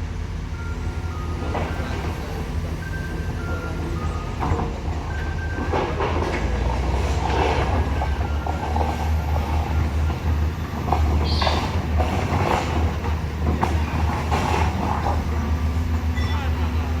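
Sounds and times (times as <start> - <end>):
diesel engine rumbling: 0.0 - 17.0
clanks and rattles: 3.5 - 16.2.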